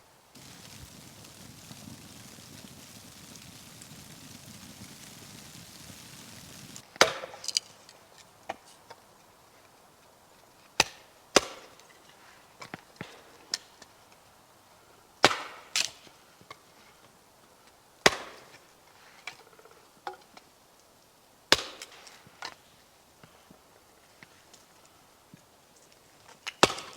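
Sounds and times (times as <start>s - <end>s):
axe chopping wood: 7.0s - 7.4s, 10.8s - 11.7s, 15.3s - 15.6s, 18.1s - 18.5s, 21.6s - 22.0s, 26.6s - 26.9s.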